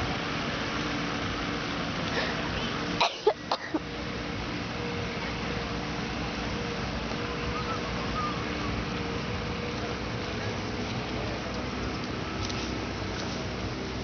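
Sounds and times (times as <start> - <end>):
outdoor background hum: 0.0 - 14.0.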